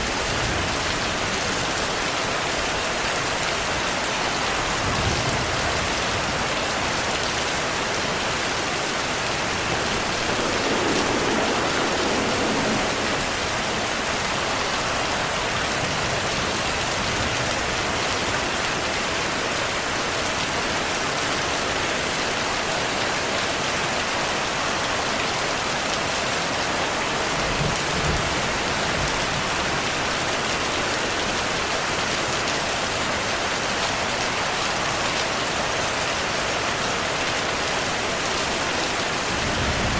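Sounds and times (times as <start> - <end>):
heavy rain falling: 0.0 - 39.9
distant thunder rumbling: 8.2 - 17.4.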